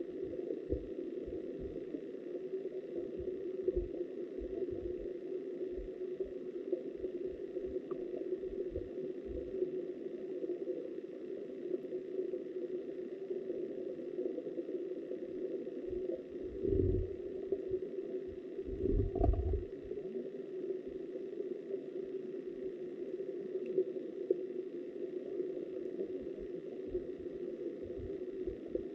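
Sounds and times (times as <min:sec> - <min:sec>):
muffled river water underwater: 0:00.0 - 0:28.9
low thuds: 0:18.8 - 0:19.6.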